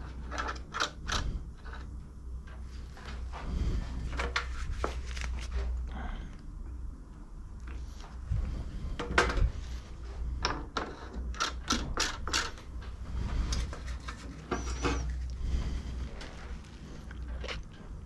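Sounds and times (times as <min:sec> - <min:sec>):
low steady hum: 0:00.0 - 0:18.0
tools and metal parts clinking: 0:10.5 - 0:12.7.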